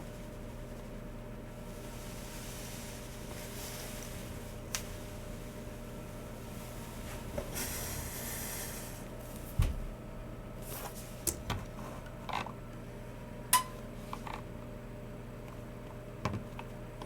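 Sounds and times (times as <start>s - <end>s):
soft rustle: 1.6s - 7.7s.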